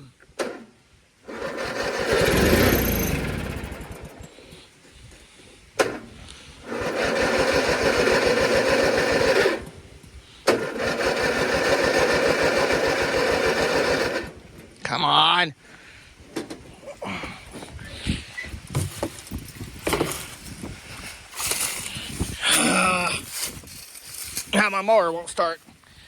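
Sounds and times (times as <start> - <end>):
starter cranking lawn mower engine: 0.3 - 14.8.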